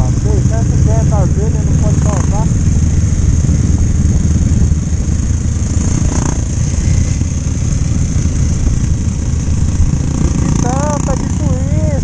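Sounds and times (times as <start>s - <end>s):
motorcycle engine running: 0.0s - 12.0s
wind rumble on microphone: 0.0s - 12.0s.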